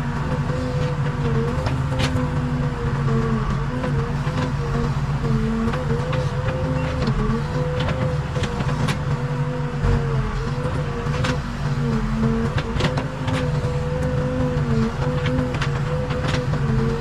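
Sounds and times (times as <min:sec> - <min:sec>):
diesel engine running: 0:00.0 - 0:17.0
sharp clicks and knocks: 0:00.4 - 0:02.5, 0:05.5 - 0:09.2, 0:09.8 - 0:17.0.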